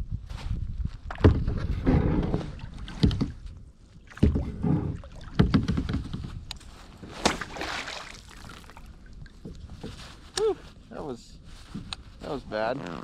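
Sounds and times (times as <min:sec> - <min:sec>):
knocks against kayak hull: 0:04.2 - 0:06.4.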